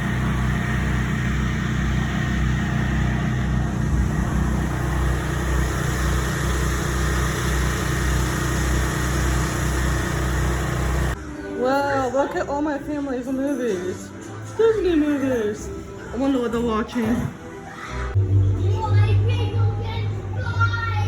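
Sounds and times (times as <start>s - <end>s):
vehicle engine and road rumble: 0.0s - 11.2s.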